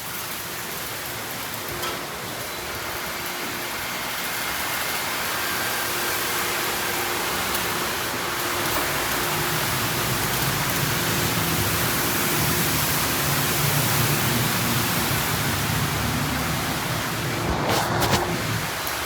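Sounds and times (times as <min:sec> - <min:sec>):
water spraying onto car: 0:08.8 - 0:19.0.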